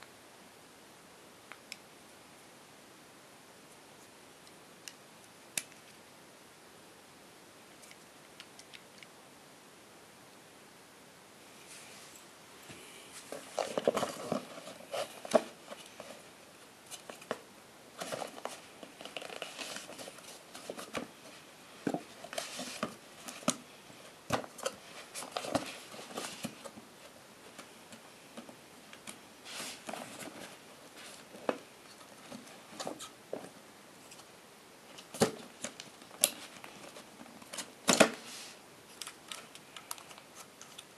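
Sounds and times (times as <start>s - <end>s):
packaging rustling and clicking: 13.2s - 16.3s, 18.0s - 21.1s, 24.3s - 26.8s.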